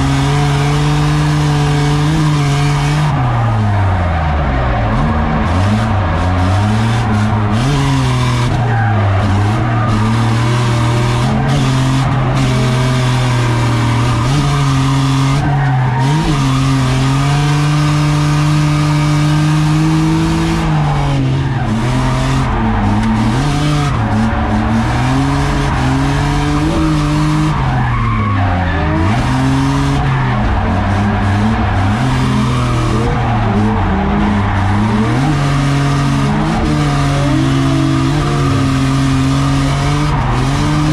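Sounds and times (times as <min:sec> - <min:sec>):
car engine at high revs: 0:00.0 - 0:40.9
tyres squealing: 0:20.3 - 0:39.2.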